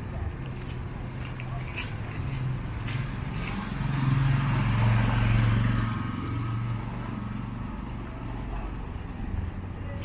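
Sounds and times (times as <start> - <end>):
vehicle engine passing by: 2.0 - 8.9.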